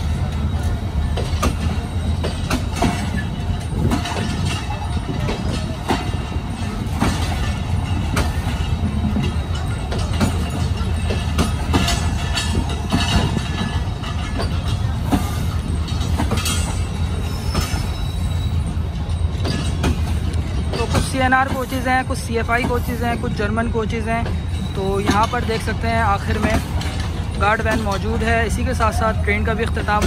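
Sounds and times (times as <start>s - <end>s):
train coaches rumbling past: 0.0s - 30.0s
wheels clacking over rails: 0.0s - 30.0s.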